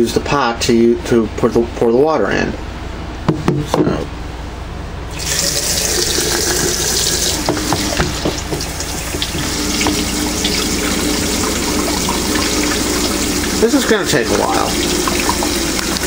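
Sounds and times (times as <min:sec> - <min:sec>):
tap water running into container: 0:05.1 - 0:16.0.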